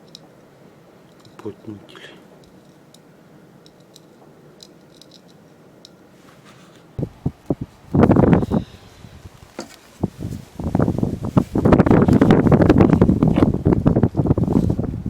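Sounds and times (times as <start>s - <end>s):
faint clicks and scrapes: 3.6s - 7.0s.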